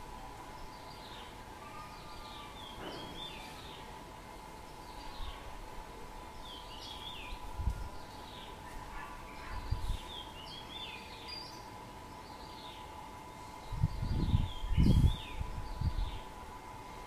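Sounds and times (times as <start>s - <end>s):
small birds chirping: 0.4s - 5.6s, 6.2s - 16.4s
wind rumble on microphone: 7.3s - 8.1s, 9.4s - 10.1s, 13.6s - 16.4s.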